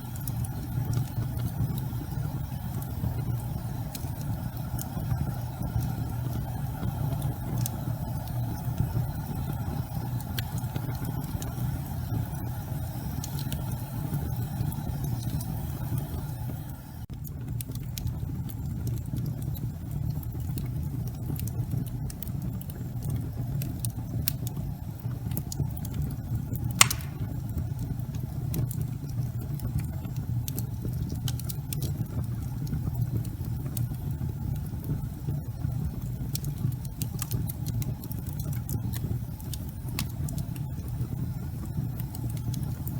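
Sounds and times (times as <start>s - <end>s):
wood fire crackling: 0.0s - 42.9s
sharp pop from fire: 26.8s - 27.4s.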